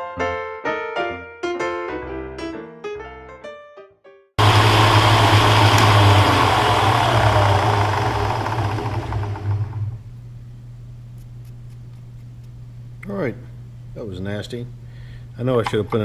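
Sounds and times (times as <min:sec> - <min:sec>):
machine motor hum: 0:04.4 - 0:10.1.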